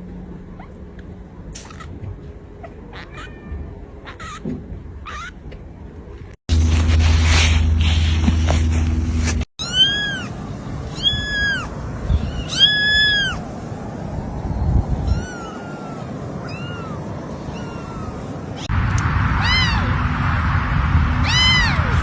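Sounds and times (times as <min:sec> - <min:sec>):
steady low hum: 0:00.0 - 0:09.5, 0:16.0 - 0:22.0
kitten mewing: 0:10.9 - 0:13.4, 0:15.0 - 0:18.7, 0:21.2 - 0:22.0.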